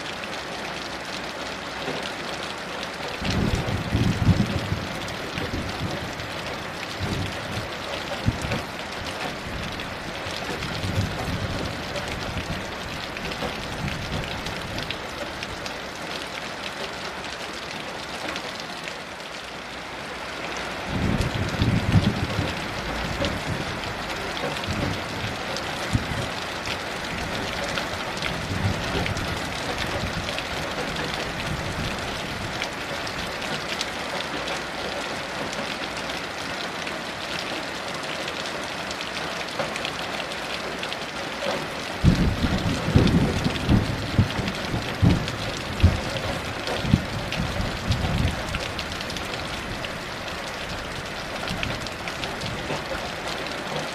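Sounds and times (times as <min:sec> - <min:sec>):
heavy rain: 0:00.0 - 0:53.9
low rumble of thunder: 0:03.2 - 0:15.6, 0:20.9 - 0:33.3, 0:42.0 - 0:52.9.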